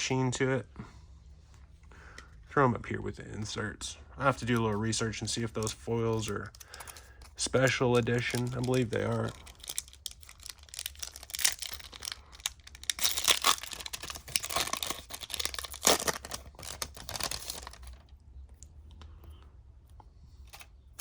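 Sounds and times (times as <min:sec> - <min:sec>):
faint handling sounds: 0:00.8 - 0:21.0
card pack wrapper tearing and crinkling: 0:05.4 - 0:18.1.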